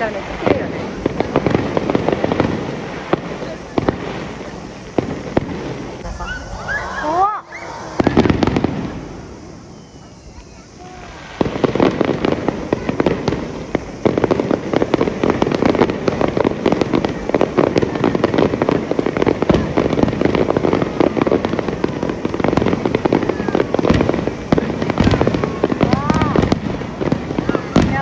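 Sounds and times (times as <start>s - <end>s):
fireworks booms: 0.0s - 28.0s
fireworks crackling: 0.0s - 28.0s
fireworks whistling: 0.0s - 28.0s.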